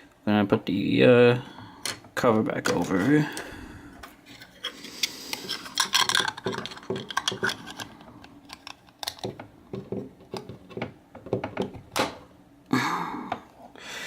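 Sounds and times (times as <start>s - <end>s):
plastic cover scraping and clicking: 4.3s - 11.7s.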